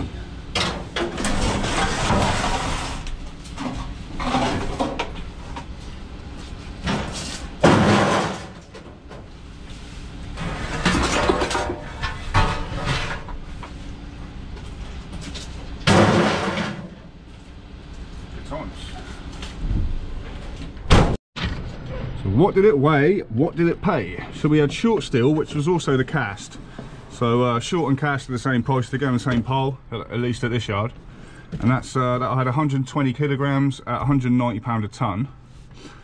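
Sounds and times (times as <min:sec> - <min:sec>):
scrap metal clattering and banging: 0:00.5 - 0:05.2, 0:06.8 - 0:09.3, 0:10.3 - 0:13.6, 0:15.2 - 0:17.1.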